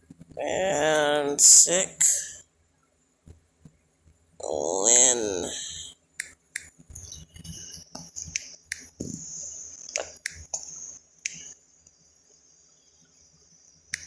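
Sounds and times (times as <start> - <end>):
faint high-pitched whine: 6.9 - 14.0.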